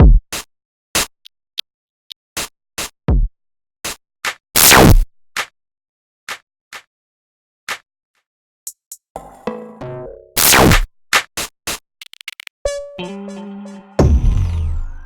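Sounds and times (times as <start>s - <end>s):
electronic drum clicks and snaps: 10.7s - 12.5s
deep kick drum falling pitch: 14.0s - 15.0s.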